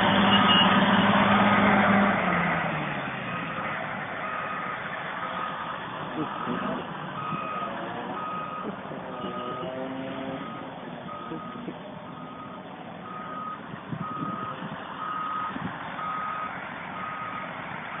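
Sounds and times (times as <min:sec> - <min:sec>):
diesel engine running: 0:00.0 - 0:18.0
reversing alarm beeping: 0:04.2 - 0:05.6, 0:06.3 - 0:17.5.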